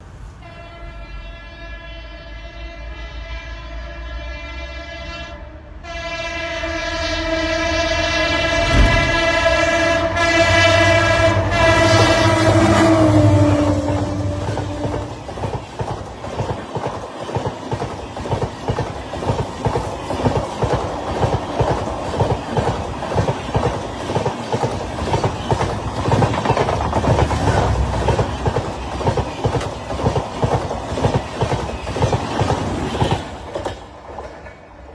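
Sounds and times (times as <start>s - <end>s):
train wheels clickety-clack: 11.8s - 34.9s.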